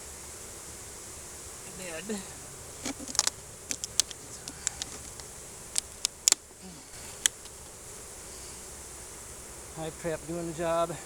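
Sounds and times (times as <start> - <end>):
honeybees humming: 0.0 - 11.0
sharp clicks and taps: 2.8 - 6.4.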